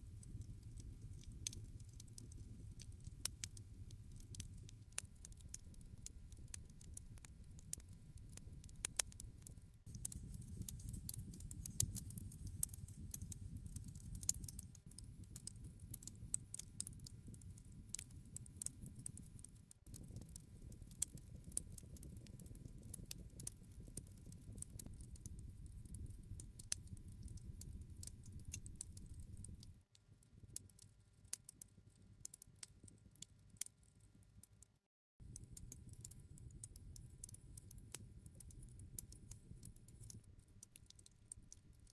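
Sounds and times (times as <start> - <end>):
campfire crackling: 0.0 - 29.7
low rumble of flames: 0.0 - 29.8.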